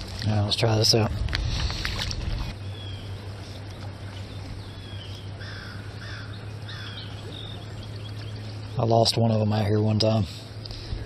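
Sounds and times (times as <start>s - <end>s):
low outdoor rumble: 0.0s - 11.0s
wild birds chirping: 2.5s - 11.0s.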